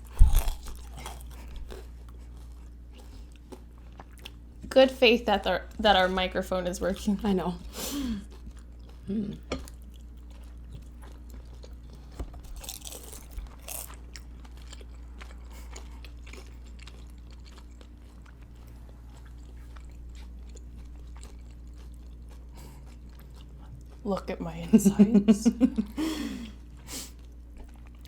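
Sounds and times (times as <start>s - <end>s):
crunchy bites: 0.0s - 2.0s, 11.6s - 17.9s
low hum: 0.0s - 8.3s.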